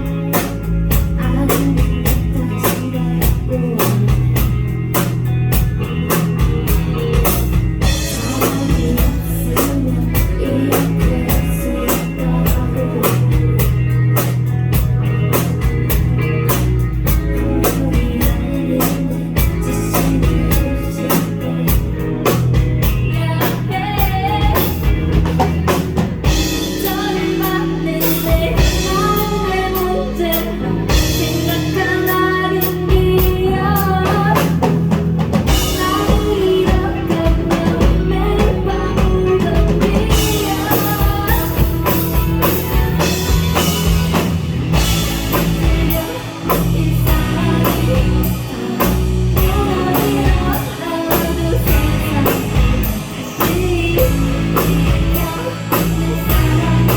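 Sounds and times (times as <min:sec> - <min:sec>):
electric guitar lead line: 0:00.0 - 0:56.9
rock band playing: 0:00.0 - 0:56.9
drum beat: 0:39.6 - 0:46.3.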